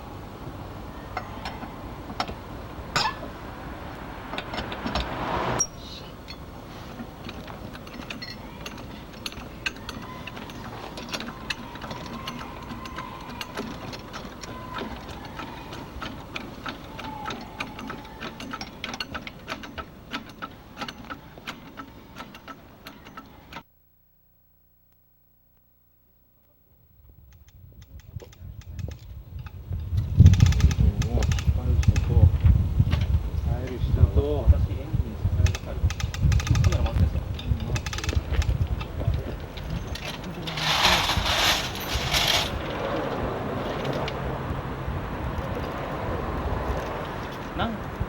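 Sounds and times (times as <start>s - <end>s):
rushing noise: 1.8s - 7.0s
rapid mechanical clicking: 7.0s - 23.6s, 27.3s - 32.2s, 35.3s - 44.2s.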